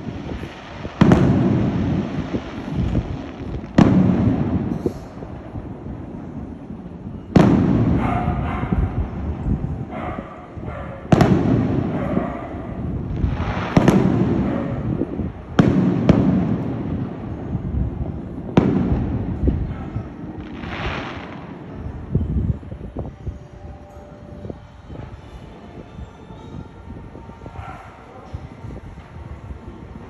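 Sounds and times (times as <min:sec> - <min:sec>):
fireworks bangs echoing: 0:00.0 - 0:23.1
hissing crackle of fireworks: 0:00.0 - 0:26.1, 0:28.2 - 0:30.0.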